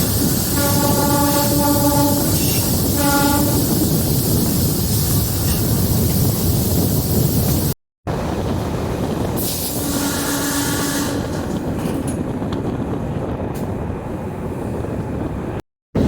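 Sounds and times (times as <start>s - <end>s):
train rumbling: 0.0s - 16.0s
train horn tone: 0.4s - 3.8s, 9.7s - 11.6s.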